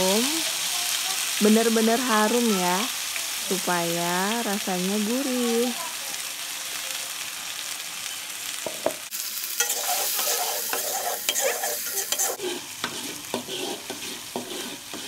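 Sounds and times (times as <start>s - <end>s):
paste sizzling in hot oil: 0.0s - 15.0s
spatula scraping and tapping wok: 8.6s - 15.0s.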